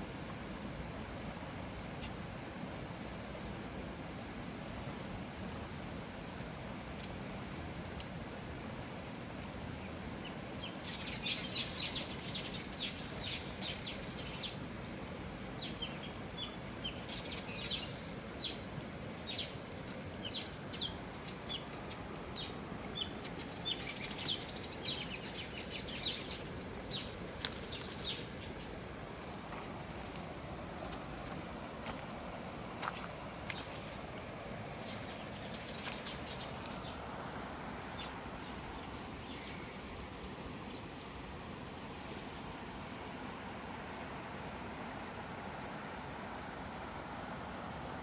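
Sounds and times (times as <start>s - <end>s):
small birds chirping: 9.8s - 41.1s
river flowing: 11.2s - 38.4s.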